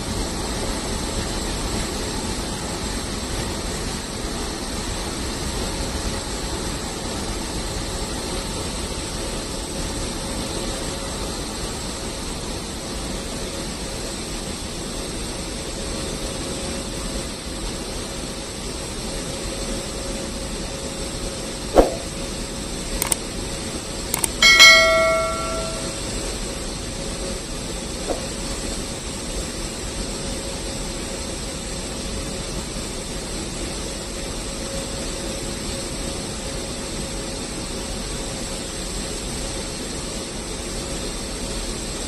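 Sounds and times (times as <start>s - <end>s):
short sharp hit: 21.8s - 22.1s.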